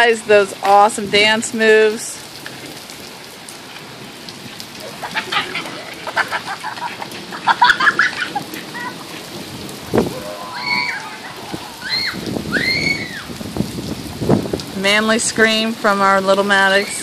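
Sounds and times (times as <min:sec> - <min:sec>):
rain on concrete: 0:00.0 - 0:17.0
children shrieking: 0:07.5 - 0:09.2, 0:10.0 - 0:13.4
child screaming: 0:08.8 - 0:09.0, 0:10.1 - 0:13.4.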